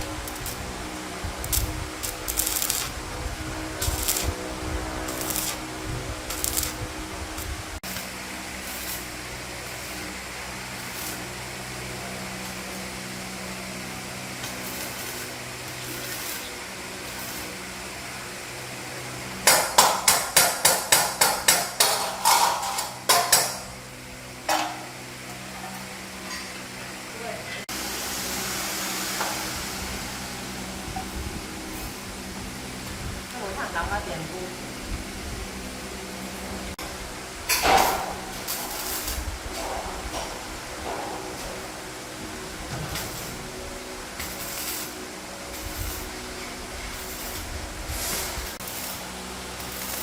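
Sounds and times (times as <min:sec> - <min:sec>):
steady low hum: 0:00.0 - 0:19.0
hammer striking metal: 0:19.4 - 0:23.7.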